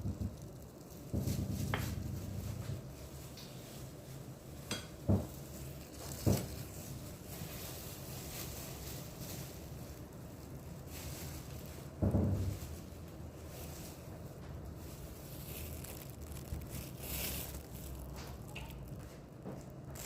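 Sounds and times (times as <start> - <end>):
steady low hum: 0.0 - 4.6
dull knocks of kitchenware: 4.7 - 5.3.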